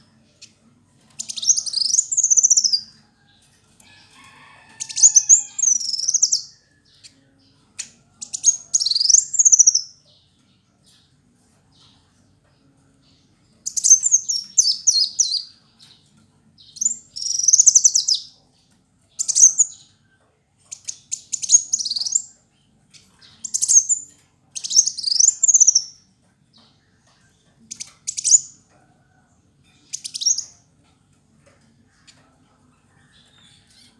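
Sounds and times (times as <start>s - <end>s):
sunbird twittering song: 1.2s - 2.9s, 4.8s - 11.1s, 13.1s - 16.0s, 16.7s - 18.4s, 19.2s - 19.8s, 20.7s - 26.0s, 29.8s - 30.6s.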